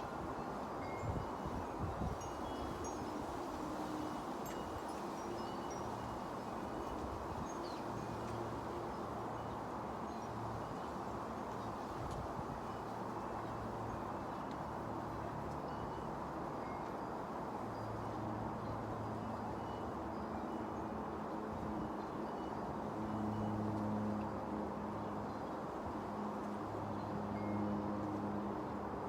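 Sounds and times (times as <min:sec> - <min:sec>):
wind chimes tinkling: 0:00.2 - 0:08.4.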